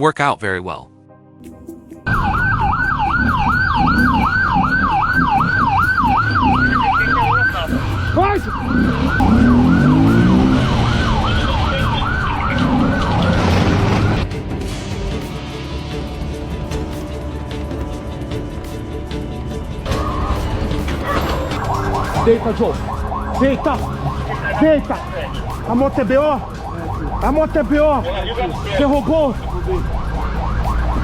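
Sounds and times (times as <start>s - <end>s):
road noise: 2.0s - 31.0s
police siren yelp: 2.1s - 14.2s, 19.9s - 31.0s.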